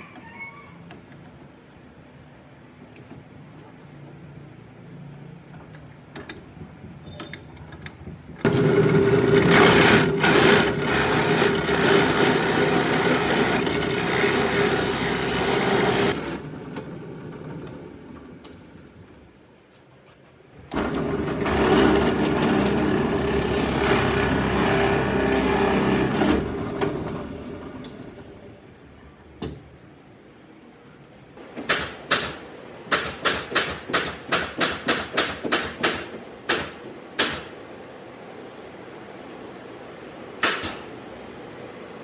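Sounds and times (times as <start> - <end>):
power tool whining: 8.4 - 18.4, 20.7 - 28.5.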